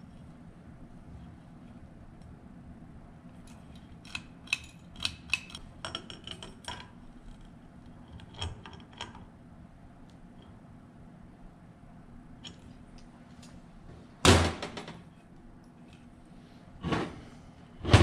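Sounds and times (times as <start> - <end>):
metal parts and tools clinking: 3.4 - 6.8.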